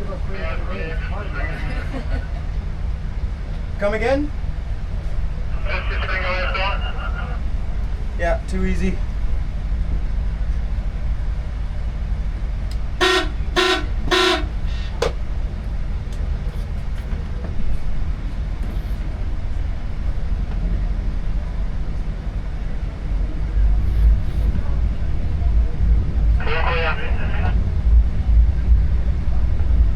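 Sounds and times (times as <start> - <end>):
boat engine droning: 12.2 - 19.6
short horn toots: 13.0 - 15.2.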